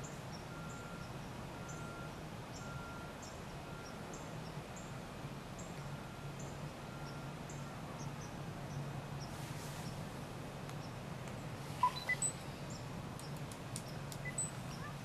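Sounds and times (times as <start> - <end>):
faint high chirps and clicks: 10.7 - 12.4, 13.2 - 14.9.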